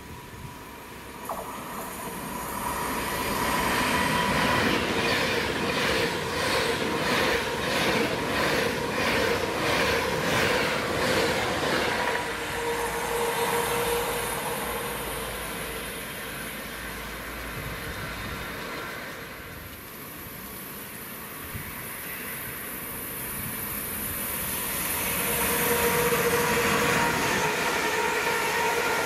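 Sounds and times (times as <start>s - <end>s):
train wheels clicking over rail joints: 1.2s - 12.4s.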